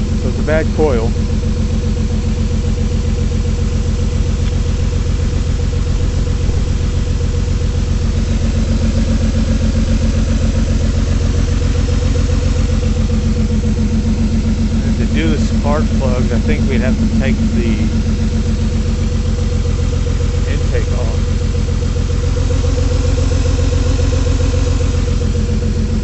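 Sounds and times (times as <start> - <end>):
car engine idling roughly: 0.0 - 26.0.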